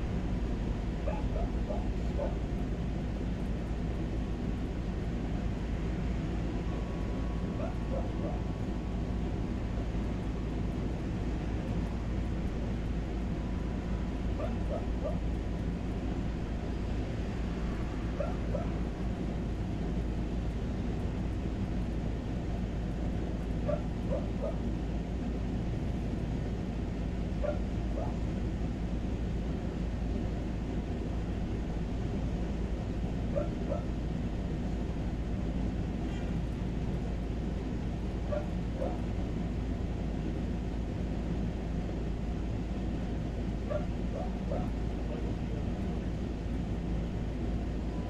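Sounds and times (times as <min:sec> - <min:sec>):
low outdoor noise: 0:00.0 - 0:48.0.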